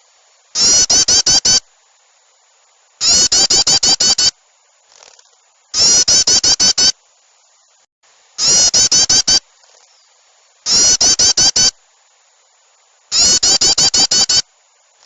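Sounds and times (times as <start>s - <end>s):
harsh chattering birdcalls: 0.6s - 1.6s, 3.0s - 4.3s, 5.2s - 6.9s, 8.4s - 10.1s, 10.7s - 11.7s, 13.1s - 14.4s
faint soft bird calls: 13.1s - 14.5s.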